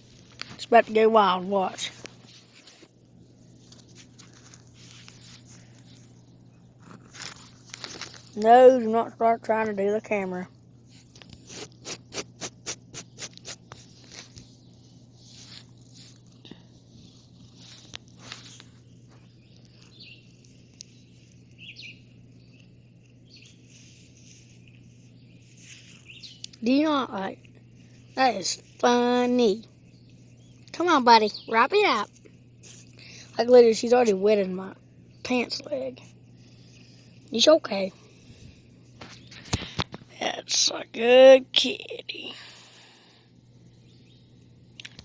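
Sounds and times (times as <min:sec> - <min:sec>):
steady low hum: 0:00.0 - 0:45.0
faint bird chirps: 0:18.5 - 0:26.7.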